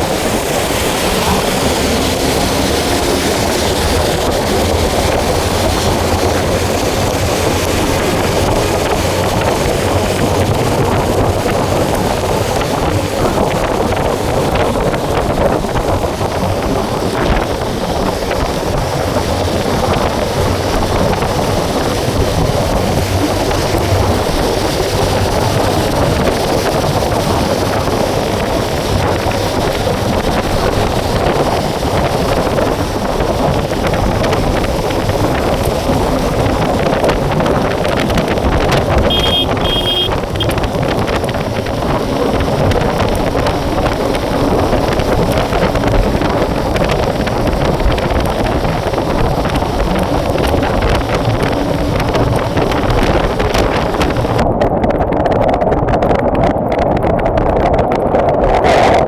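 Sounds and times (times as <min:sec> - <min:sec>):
heavy rain: 0:00.0 - 0:55.0
motorbike engine and road noise: 0:00.0 - 0:59.0
wind buffeting microphone: 0:00.0 - 0:59.0
high beeping: 0:39.1 - 0:40.5.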